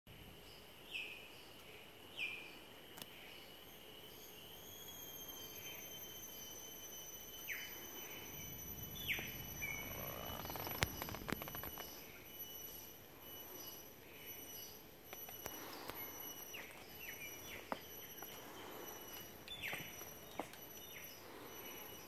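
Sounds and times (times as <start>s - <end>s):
high insect whine: 3.2s - 22.0s.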